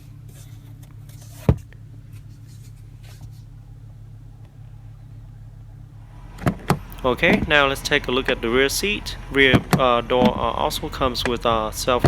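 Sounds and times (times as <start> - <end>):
low hum in car cabin: 0.0 - 12.0
sun visor clicking shut: 6.4 - 7.5.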